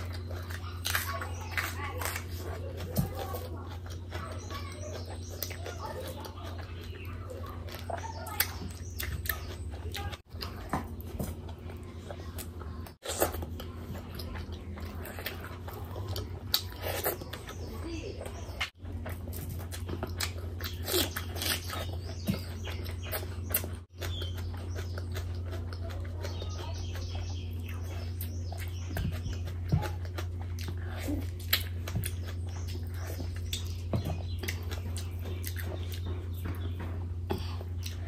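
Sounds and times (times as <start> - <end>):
person chewing food: 0.0 - 38.0.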